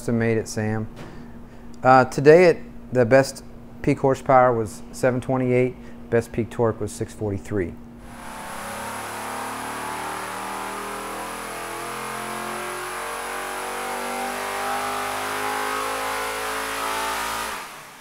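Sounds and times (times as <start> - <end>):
race engine running on dyno: 8.0 - 18.0.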